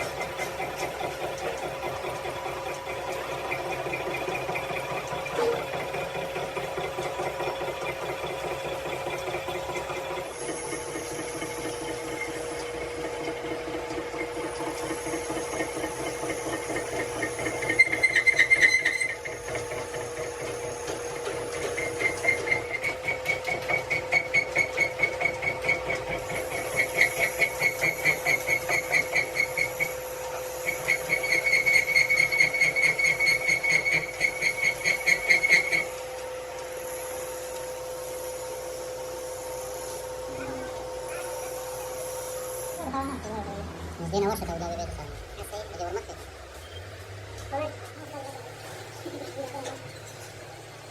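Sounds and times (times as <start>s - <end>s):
workshop machine humming: 0.0s - 50.9s.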